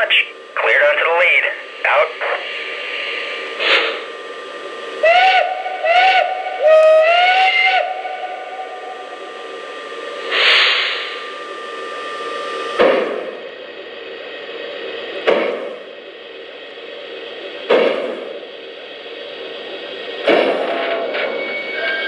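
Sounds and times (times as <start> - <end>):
steam hiss: 2.2 - 4.1, 5.0 - 13.4
model train steam whistle: 5.0 - 11.2, 20.7 - 22.0.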